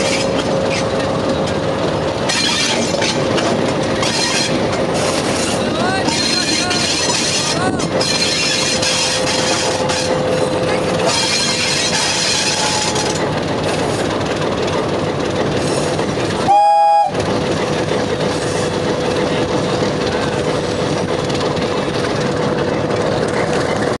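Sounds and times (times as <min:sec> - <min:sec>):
train rumbling on track: 0:00.0 - 0:24.0
locomotive air horn blast: 0:16.4 - 0:17.2.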